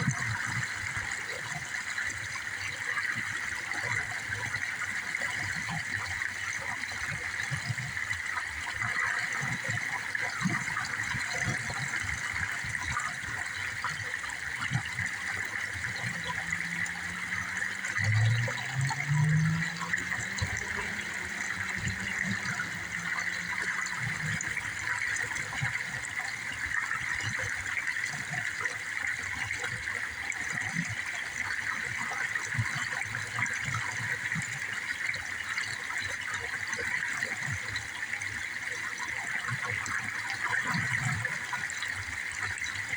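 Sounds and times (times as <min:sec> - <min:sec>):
running water: 0:00.0 - 0:42.9
low humming tone: 0:14.2 - 0:26.0.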